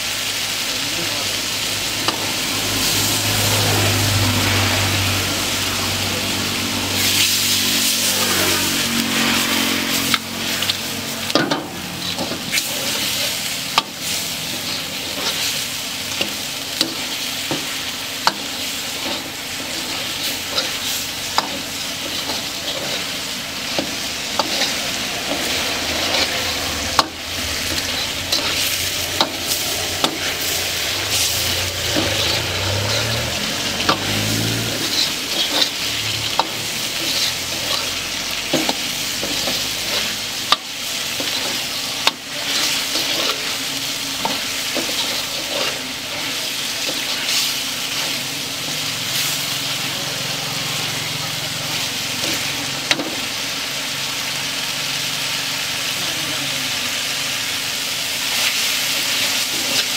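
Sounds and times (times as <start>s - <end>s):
food sizzling in a pan: 0.0s - 59.9s
metal ladle scraping a pan: 7.0s - 48.6s.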